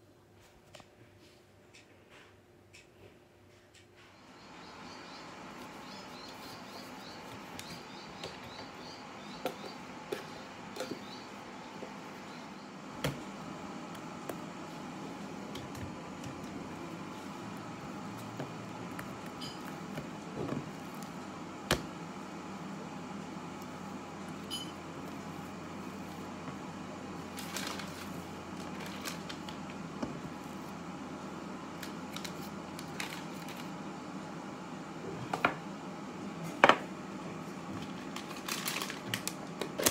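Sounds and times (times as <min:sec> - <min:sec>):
steady background hum: 0:00.0 - 0:39.9
baking paper rustling and crinkling: 0:25.0 - 0:30.8, 0:31.7 - 0:33.8, 0:37.7 - 0:39.9.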